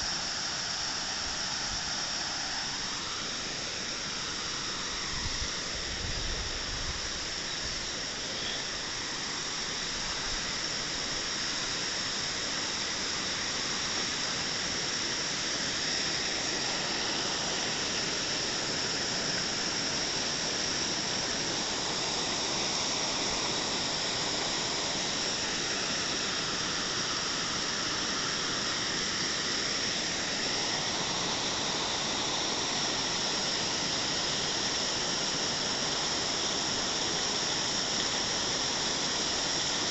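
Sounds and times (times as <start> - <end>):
waterfall rushing: 8.0 - 39.9.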